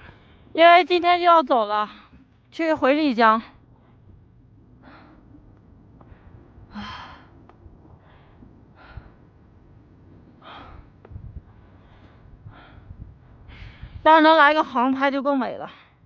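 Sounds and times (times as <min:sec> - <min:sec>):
low steady rumble: 0:00.0 - 0:16.0
person breathing: 0:04.8 - 0:05.4, 0:08.0 - 0:09.4, 0:10.4 - 0:14.1.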